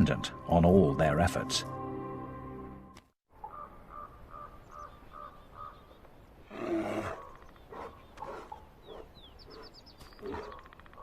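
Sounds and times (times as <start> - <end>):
rough animal roar: 6.4 - 8.5.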